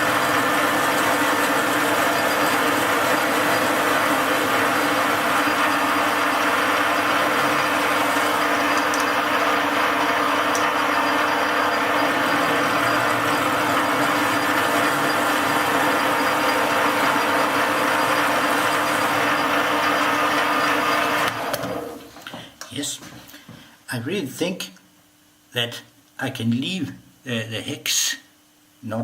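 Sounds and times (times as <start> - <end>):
metal lathe cutting: 0.0 - 21.7.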